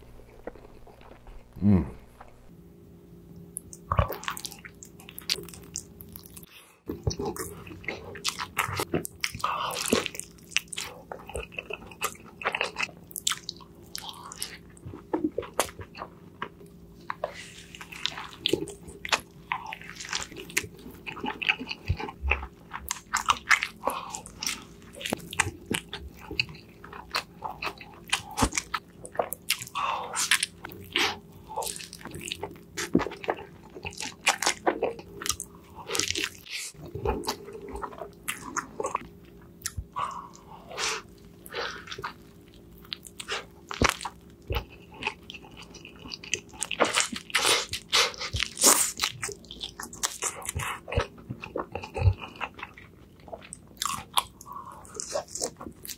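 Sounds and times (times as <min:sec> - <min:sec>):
person chewing a burger: 0:00.0 - 0:02.5, 0:03.6 - 0:55.9
faint steady hum: 0:00.0 - 0:55.9.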